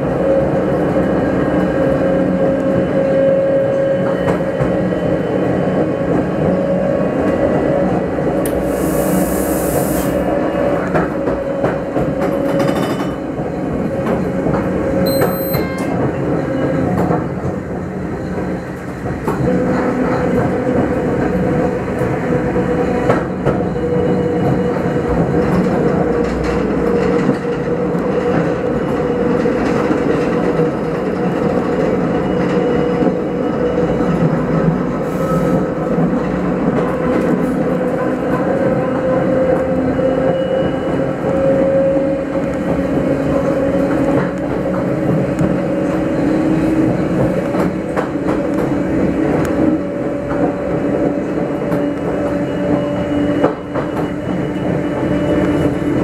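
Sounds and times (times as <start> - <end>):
electric railcar whine: 0.0 - 56.0
burst of hiss: 8.6 - 10.2
brief high tone: 15.1 - 16.0.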